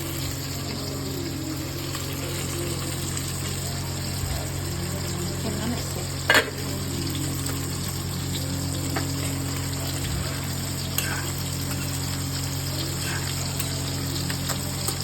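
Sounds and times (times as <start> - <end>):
low hum: 0.0 - 14.9
fish sizzling in oil: 0.0 - 15.0.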